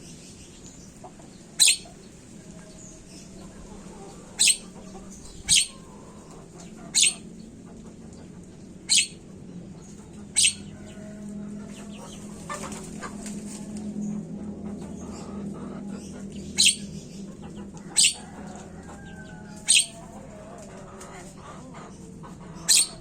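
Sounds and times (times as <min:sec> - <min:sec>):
low hum: 0:00.0 - 0:20.9
bird calling: 0:01.6 - 0:02.0, 0:04.3 - 0:07.5, 0:08.8 - 0:09.3, 0:10.3 - 0:10.9, 0:16.4 - 0:18.5, 0:19.5 - 0:20.4, 0:22.6 - 0:23.0
bird chattering: 0:01.6 - 0:02.0, 0:04.3 - 0:07.6, 0:08.7 - 0:09.5, 0:10.2 - 0:10.8, 0:16.0 - 0:18.4, 0:19.5 - 0:20.3, 0:22.5 - 0:23.0.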